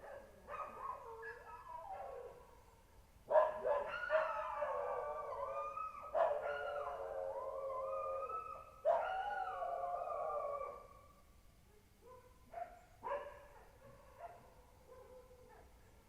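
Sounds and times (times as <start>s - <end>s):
animals howling: 3.6s - 11.1s.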